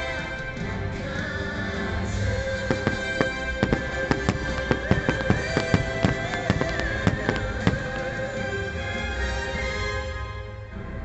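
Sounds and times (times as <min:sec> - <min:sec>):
music with long held notes: 0:00.0 - 0:11.0
fireworks bursting: 0:02.6 - 0:08.8.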